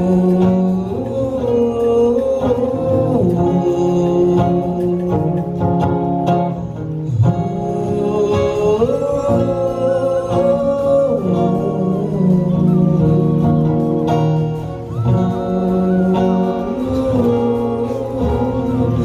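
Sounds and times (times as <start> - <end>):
instrumental accompaniment: 0.0 - 19.0
voices singing long held notes: 7.1 - 19.0.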